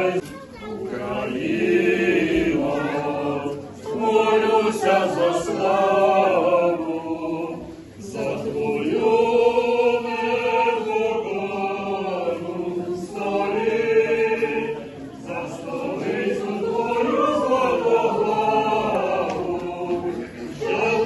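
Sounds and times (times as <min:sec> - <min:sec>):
choir singing chant a cappella: 0:00.0 - 0:21.0.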